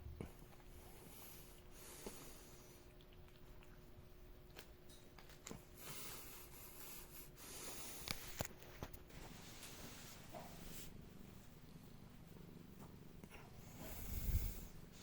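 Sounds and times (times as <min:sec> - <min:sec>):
faint rustling and rubbing: 0:05.8 - 0:15.0.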